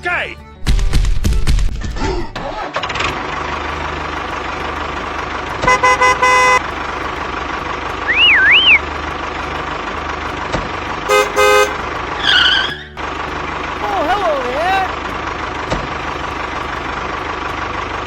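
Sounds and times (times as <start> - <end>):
truck engine running: 2.4 - 18.0
horn toots: 5.5 - 7.3, 11.0 - 13.1
warbling whistle: 8.1 - 8.9.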